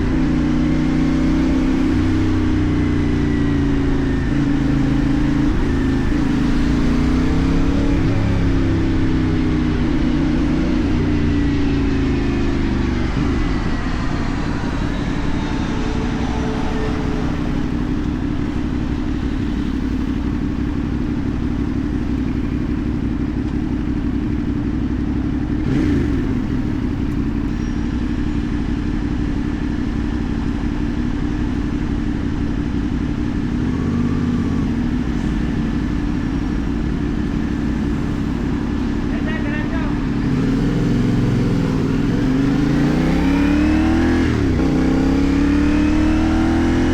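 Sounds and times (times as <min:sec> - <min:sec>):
motorcycle engine cruising: 0:00.0 - 0:46.9.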